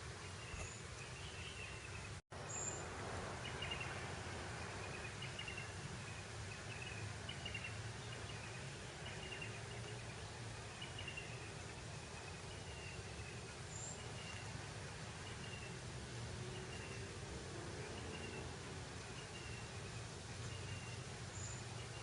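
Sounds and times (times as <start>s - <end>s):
breeze over grass: 0.0s - 22.0s.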